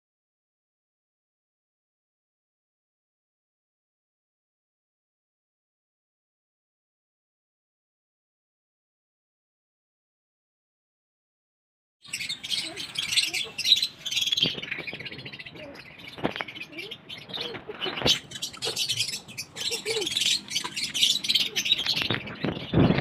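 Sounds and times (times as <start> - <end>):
small birds chirping: 12.0 - 23.0.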